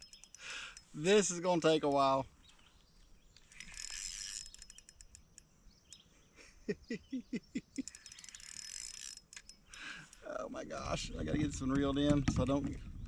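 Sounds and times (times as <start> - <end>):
fishing reel drag clicking: 0.0 - 2.2, 3.4 - 6.1, 7.8 - 10.3.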